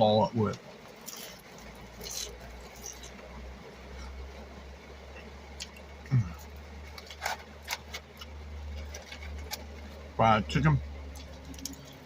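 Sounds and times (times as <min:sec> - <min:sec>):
steady low hum: 0:00.0 - 0:12.0
person eating: 0:01.0 - 0:03.3.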